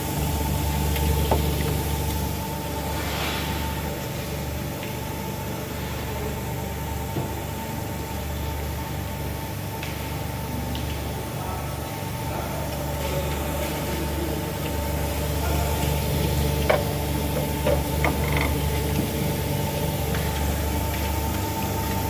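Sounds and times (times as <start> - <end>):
grinding machine motor hum: 11.9 - 22.0.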